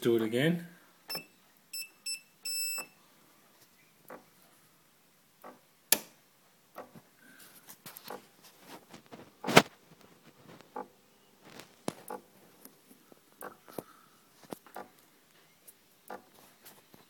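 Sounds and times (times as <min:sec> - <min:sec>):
espresso machine button beep: 0:01.1 - 0:02.9.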